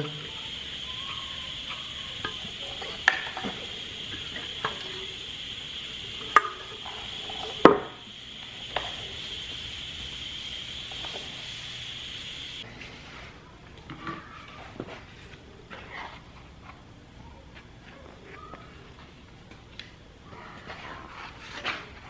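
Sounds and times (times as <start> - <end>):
high-pitched hum: 0.0 - 12.6.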